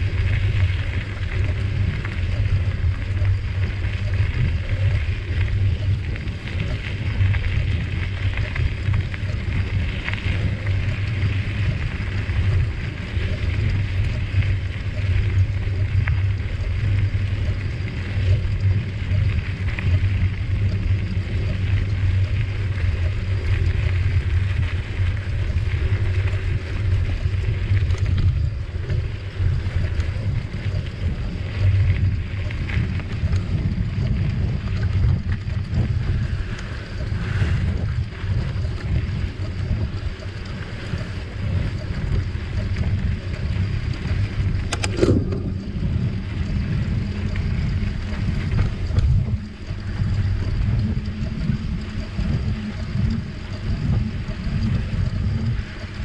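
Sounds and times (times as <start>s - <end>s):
tyres rolling over trail: 0.0s - 56.0s
wind buffeting microphone: 0.0s - 56.0s.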